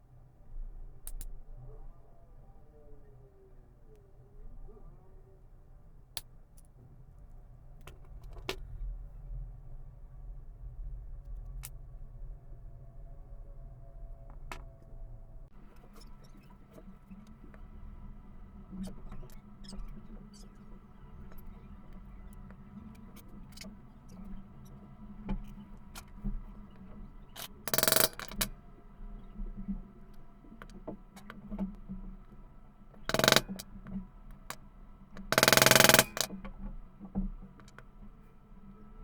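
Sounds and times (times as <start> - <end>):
tools clicking and tapping: 27.4 - 28.5, 33.1 - 33.7, 35.2 - 36.4.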